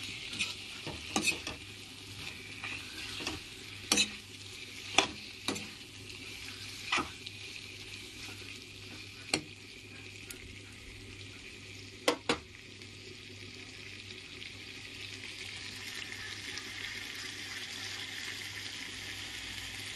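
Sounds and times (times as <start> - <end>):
food sizzling in a wok: 0.0 - 19.9
metal ladle clinking on pan: 3.2 - 4.2.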